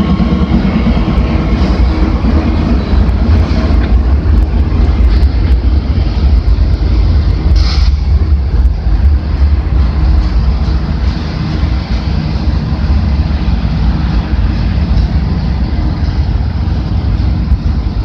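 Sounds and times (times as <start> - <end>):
freight train rumbling over bridge: 0.0 - 18.0
brief high hiss: 7.6 - 8.0.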